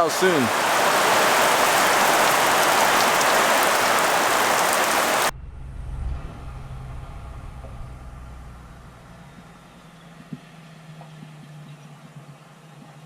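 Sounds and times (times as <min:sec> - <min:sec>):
heavy rain: 0:00.0 - 0:05.3
low engine hum: 0:03.8 - 0:13.0.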